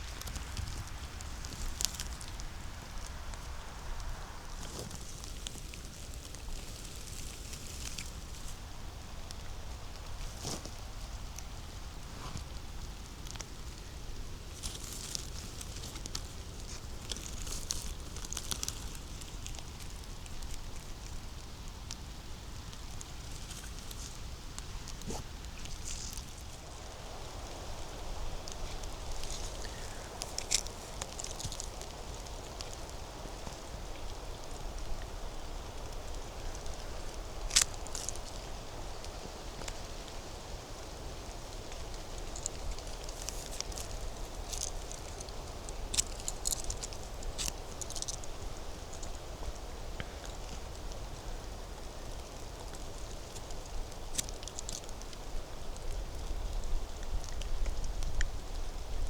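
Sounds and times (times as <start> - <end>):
twig snapping: 28.4 - 32.0.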